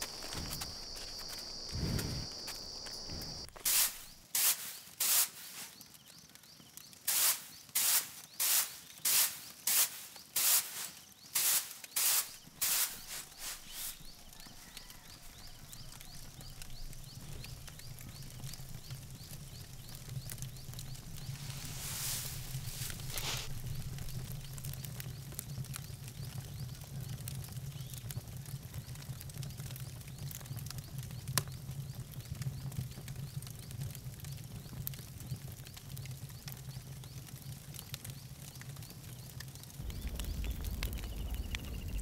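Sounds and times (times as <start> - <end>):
brisk scraping strokes: 0.0 - 5.8, 7.1 - 14.9, 21.2 - 23.7.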